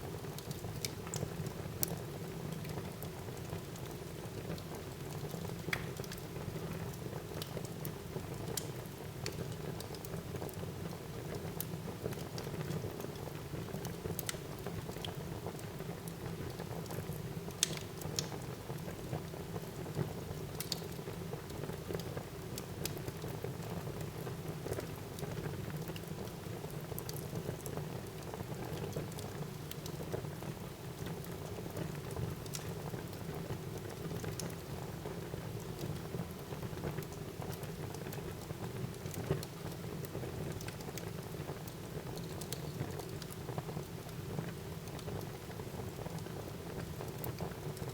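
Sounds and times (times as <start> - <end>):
burning wood crackling and popping: 19.9 - 21.1, 36.9 - 47.9.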